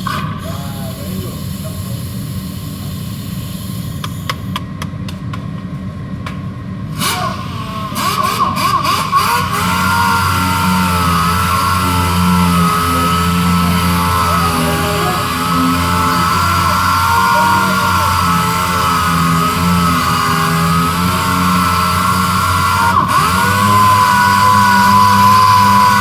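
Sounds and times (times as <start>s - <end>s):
low hum: 5.7s - 26.0s
power sander whining: 7.0s - 26.0s.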